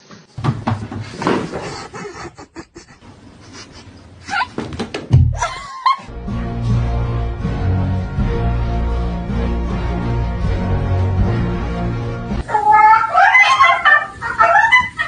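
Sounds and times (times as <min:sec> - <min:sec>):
cats crying: 0:12.4 - 0:15.0.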